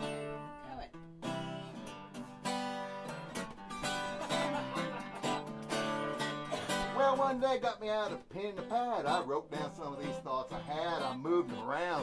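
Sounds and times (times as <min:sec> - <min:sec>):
acoustic guitar strumming: 0:00.0 - 0:12.0
person singing: 0:06.6 - 0:12.0.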